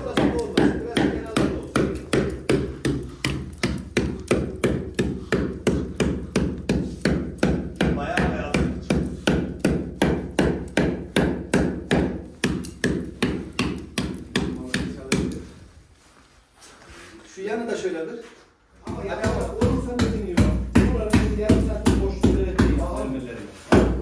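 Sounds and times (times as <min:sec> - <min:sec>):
hammer striking a wall: 0:00.0 - 0:15.5, 0:18.8 - 0:23.0, 0:23.7 - 0:24.0.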